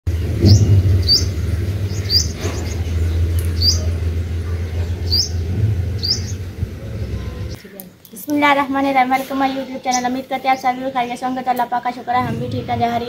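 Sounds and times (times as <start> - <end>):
steady low rumble: 0.1 - 7.6
bird chirping: 0.1 - 7.8, 9.4 - 11.2.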